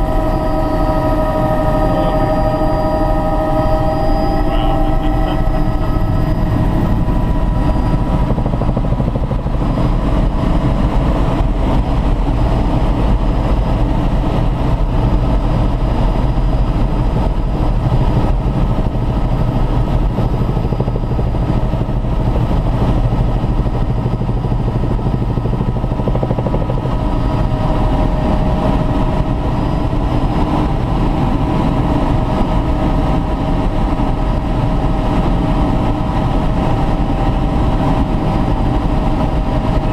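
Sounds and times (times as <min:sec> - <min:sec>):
whining tones: 0:00.0 - 0:11.5
helicopter engine and rotor drone: 0:00.0 - 0:39.9.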